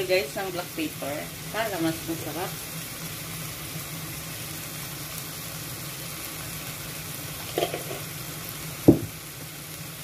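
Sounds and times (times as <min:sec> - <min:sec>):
food sizzling in a pan: 0:00.0 - 0:10.0
sharp knock: 0:08.9 - 0:09.1.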